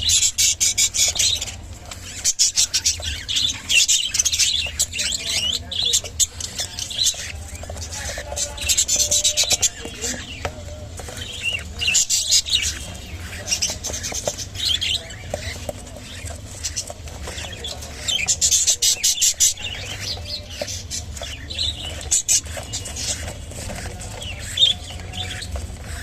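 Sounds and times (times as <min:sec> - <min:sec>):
budgerigars chattering: 0:00.0 - 0:26.0.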